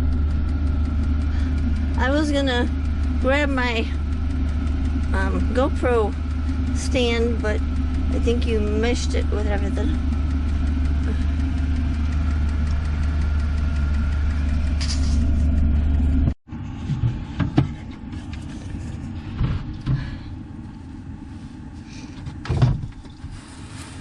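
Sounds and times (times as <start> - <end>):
engine idling: 0.0 - 16.4
knocks and clunks: 6.7 - 18.0, 22.2 - 23.3.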